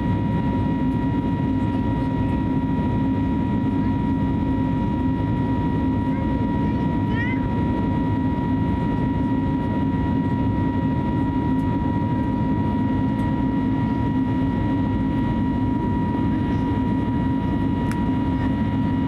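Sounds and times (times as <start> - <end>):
aircraft engine and airflow rumble: 0.0 - 19.0
constant high whine: 0.0 - 19.0.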